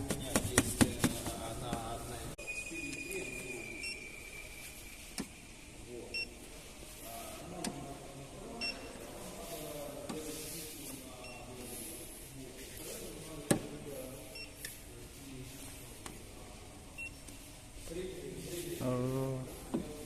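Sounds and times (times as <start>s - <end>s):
muffled voices: 0.0s - 20.0s
short electronic beeps: 2.4s - 5.1s.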